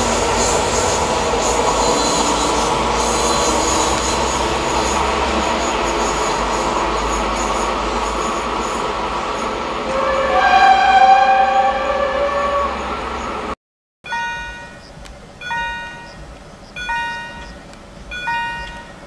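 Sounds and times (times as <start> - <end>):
high wheel squeal: 0.0 - 13.6
train wheels rumbling on rails: 0.0 - 19.0.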